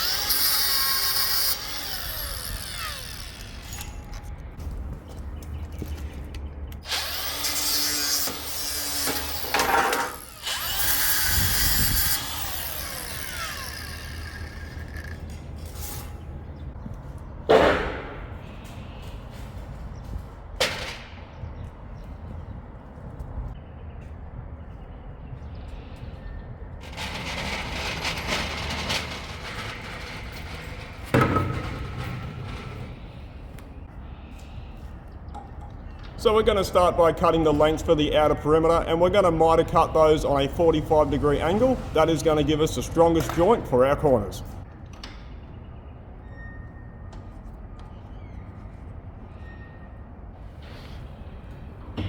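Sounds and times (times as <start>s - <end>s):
motor whining: 0.0s - 4.2s, 6.8s - 15.2s
hissing and grinding: 0.0s - 4.5s, 6.7s - 16.3s
steel rattling and clattering: 26.8s - 33.6s.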